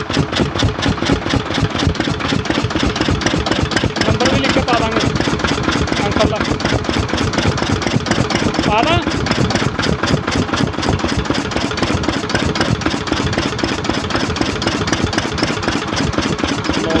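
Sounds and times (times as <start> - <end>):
stationary diesel engine running: 0.0 - 17.0.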